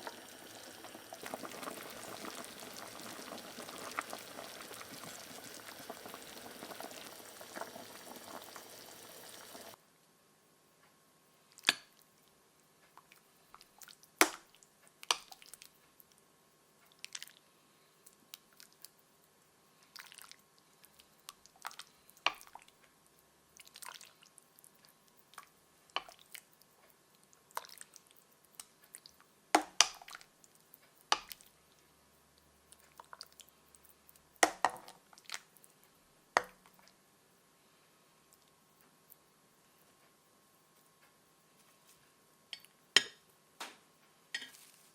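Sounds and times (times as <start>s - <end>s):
faint steady hum: 0.0s - 44.9s.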